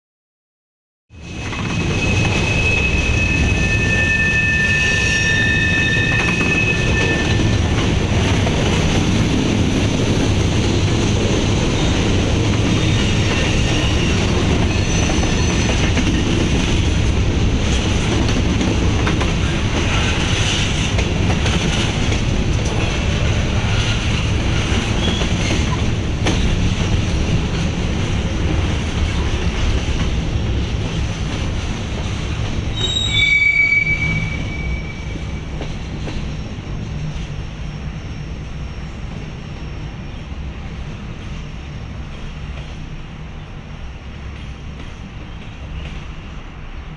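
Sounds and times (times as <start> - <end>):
freight train rumbling past: 1.1 - 46.9
steel wheels squealing: 1.2 - 7.7, 12.7 - 16.3, 22.8 - 25.9, 32.7 - 40.5.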